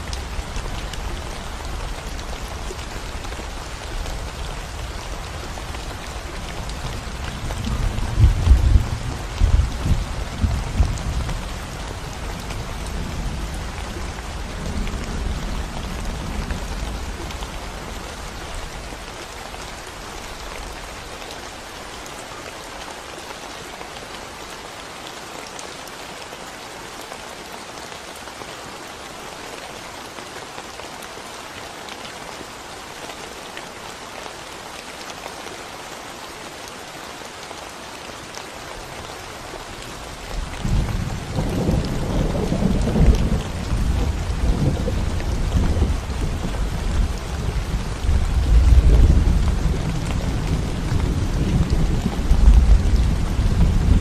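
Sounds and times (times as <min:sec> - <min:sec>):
rain on concrete road: 0:00.0 - 0:54.0
low thunder rumble: 0:07.0 - 0:11.8, 0:40.6 - 0:54.0.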